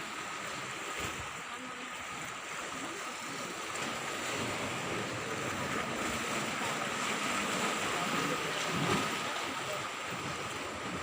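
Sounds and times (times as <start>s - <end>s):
sea water rushing: 0.0s - 11.0s
wind: 0.0s - 11.0s.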